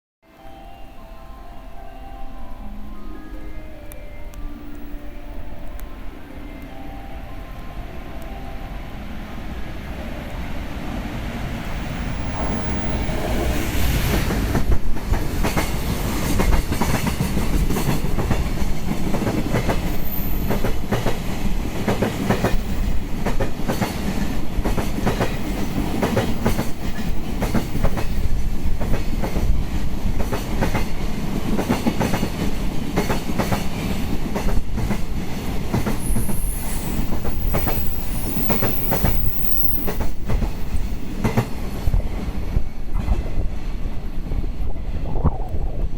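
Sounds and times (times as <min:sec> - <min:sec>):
freight train rumbling past: 0:00.3 - 0:45.9
high-pitched wheel squeals: 0:36.0 - 0:40.2.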